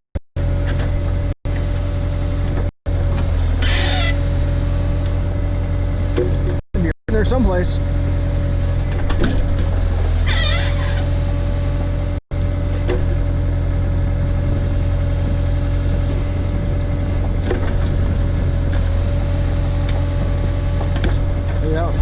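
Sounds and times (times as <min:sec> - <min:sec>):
backhoe engine running: 0:00.4 - 0:22.0
wavering squeal: 0:03.3 - 0:04.6, 0:10.0 - 0:11.4.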